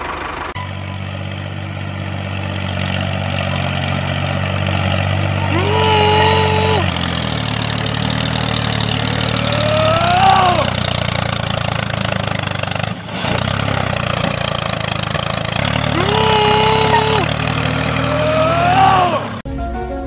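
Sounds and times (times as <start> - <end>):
tractor engine humming: 0.0 - 20.0
high-pitched cry: 5.5 - 6.9, 9.4 - 10.7, 15.9 - 17.3.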